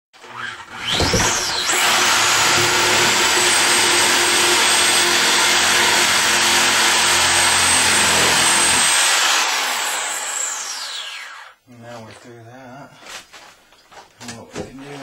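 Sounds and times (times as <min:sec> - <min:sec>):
power cutting tool whining: 0:00.2 - 0:11.6.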